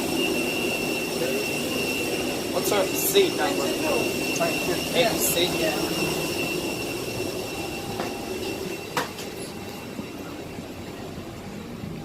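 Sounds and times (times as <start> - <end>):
airliner cabin hum: 0.0 - 12.0.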